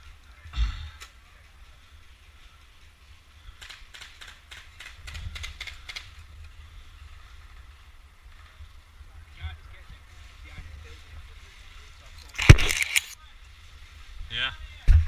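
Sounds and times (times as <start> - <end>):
sharp clicks and snaps: 3.6 - 6.2, 12.2 - 13.2.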